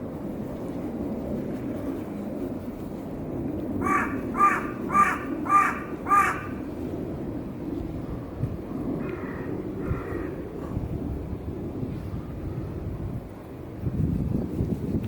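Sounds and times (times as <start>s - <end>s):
crow cawing: 3.8s - 6.6s, 9.0s - 10.4s.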